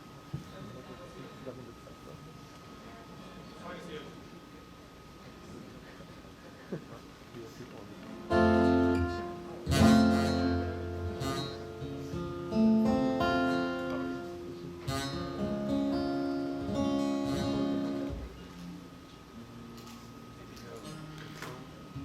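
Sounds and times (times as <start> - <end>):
acoustic guitar strumming chords: 8.1 - 19.8.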